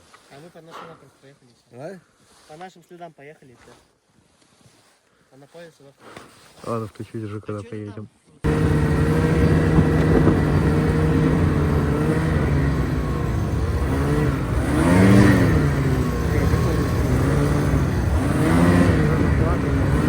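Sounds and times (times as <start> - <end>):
snowmobile engine revving: 8.5 - 20.0.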